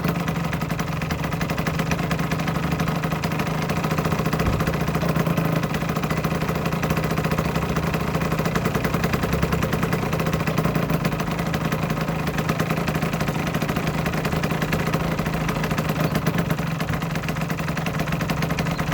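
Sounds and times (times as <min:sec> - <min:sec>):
two-stroke engine idling: 0:00.0 - 0:18.9.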